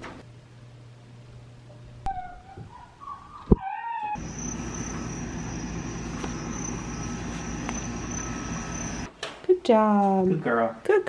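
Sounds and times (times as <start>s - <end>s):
steady hum with thin high tone: 4.2s - 9.1s.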